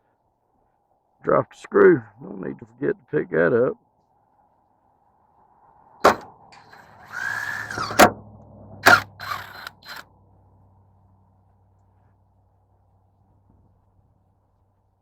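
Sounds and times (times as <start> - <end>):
metal screws clicking: 6.1 - 8.1, 8.8 - 10.0
cordless drill running: 6.6 - 8.1, 8.8 - 10.0.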